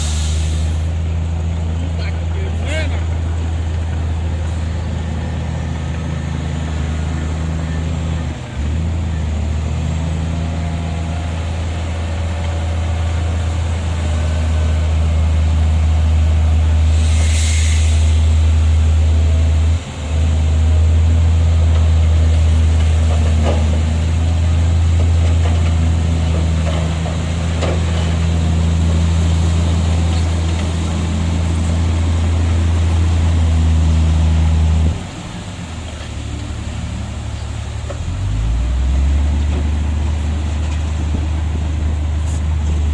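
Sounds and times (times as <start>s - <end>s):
short hiss: 0.0s - 0.9s, 16.9s - 18.3s
heavy diesel engine running: 0.0s - 42.9s.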